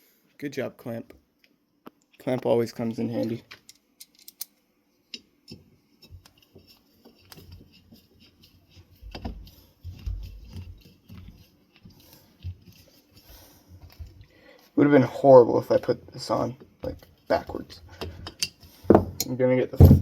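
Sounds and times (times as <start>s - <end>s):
low knocks and thumps: 19.8s - 20.0s.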